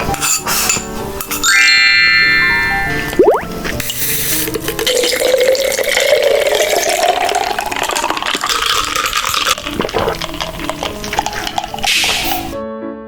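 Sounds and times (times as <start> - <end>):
drink pouring into a glass: 3.1 - 12.6.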